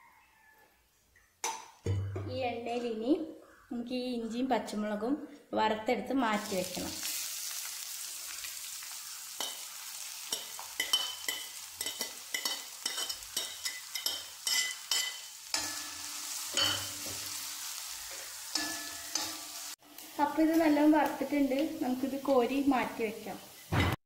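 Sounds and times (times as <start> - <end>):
ginger and chillies sizzling in oil: 6.0 - 24.0
steel spoon clinking on a pan: 9.4 - 9.7, 10.3 - 17.5, 18.5 - 19.7.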